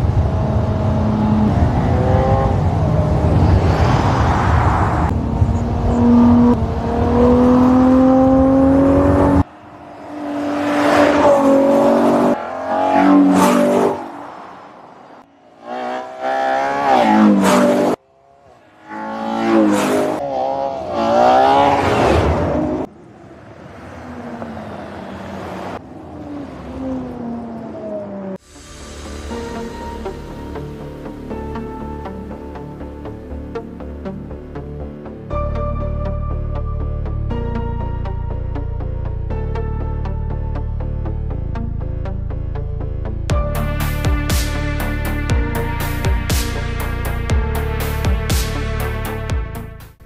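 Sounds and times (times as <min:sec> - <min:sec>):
car accelerating and passing by: 0:00.0 - 0:28.4
car engine revving hard: 0:05.7 - 0:09.4.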